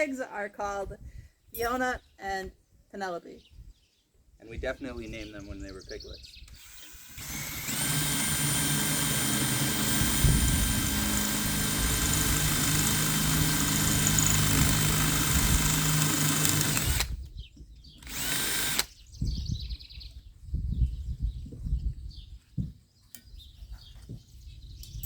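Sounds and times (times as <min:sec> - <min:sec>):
electric drill running: 0:06.5 - 0:17.2, 0:18.0 - 0:18.9.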